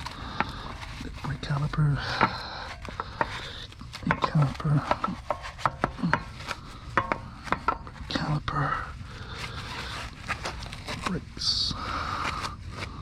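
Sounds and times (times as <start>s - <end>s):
brush knocking wheel: 0.0s - 13.0s
brush scrubbing wheel: 0.0s - 13.0s.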